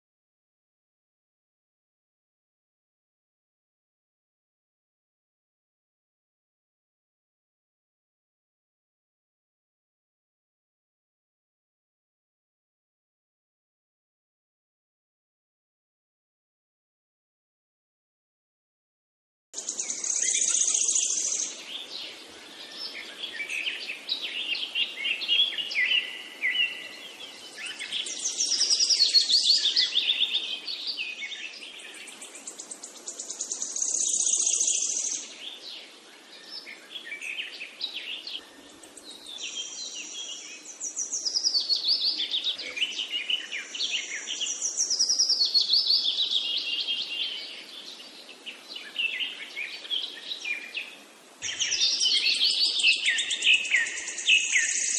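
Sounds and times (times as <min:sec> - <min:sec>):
songbird singing: 0:19.6 - 0:54.9.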